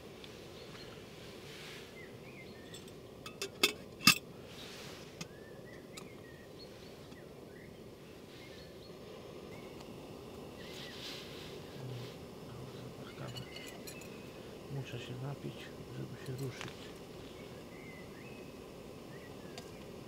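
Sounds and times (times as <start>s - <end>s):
outdoor background: 0.0s - 20.0s
faint bird chirps: 0.5s - 2.9s, 5.2s - 9.9s, 10.5s - 19.9s.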